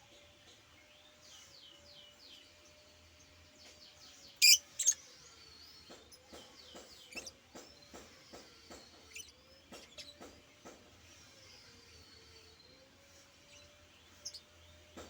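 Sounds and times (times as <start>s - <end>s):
bird chirps: 4.3s - 5.0s.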